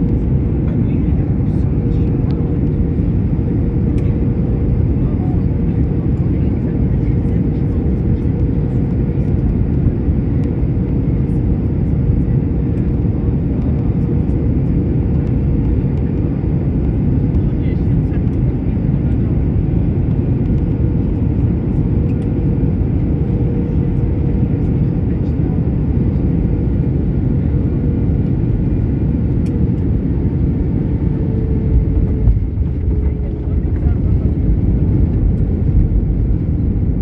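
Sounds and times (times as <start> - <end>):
engine rumble: 15.1 - 37.0.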